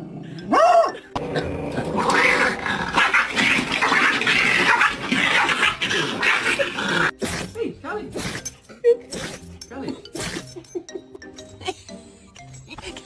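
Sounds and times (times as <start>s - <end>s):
dog growling: 0.0s - 8.6s.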